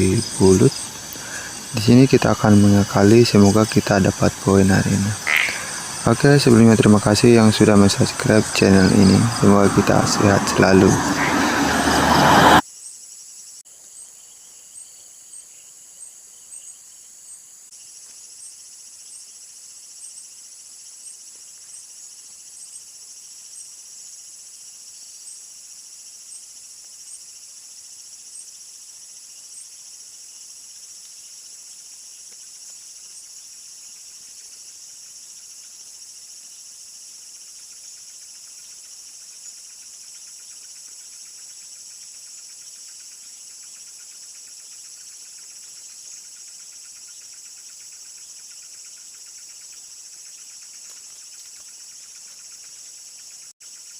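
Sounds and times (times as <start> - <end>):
insect chorus drone: 0.0 - 53.9.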